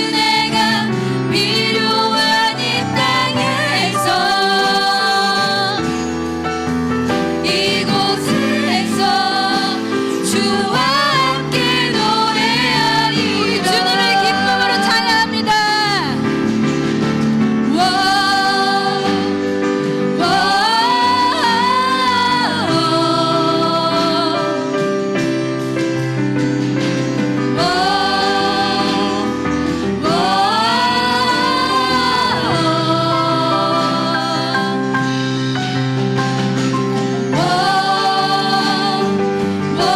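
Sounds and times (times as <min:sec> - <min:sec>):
woman singing with vibrato: 0:00.0 - 0:05.9, 0:07.5 - 0:16.2, 0:20.2 - 0:24.6, 0:27.6 - 0:34.8
band accompaniment: 0:00.0 - 0:39.9.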